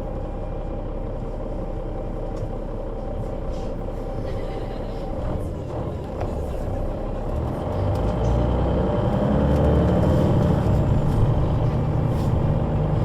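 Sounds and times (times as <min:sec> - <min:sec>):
bus engine running: 0:00.0 - 0:13.0.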